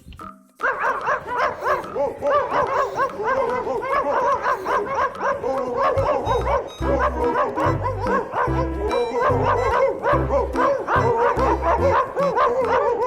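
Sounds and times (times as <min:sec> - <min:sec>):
dog barking and yipping: 0:00.6 - 0:13.0
music with pulsing bass: 0:06.2 - 0:13.0.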